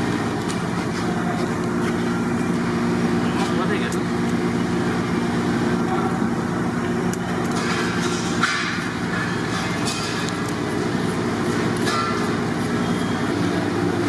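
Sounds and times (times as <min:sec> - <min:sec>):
low mechanical drone: 0:00.0 - 0:14.0.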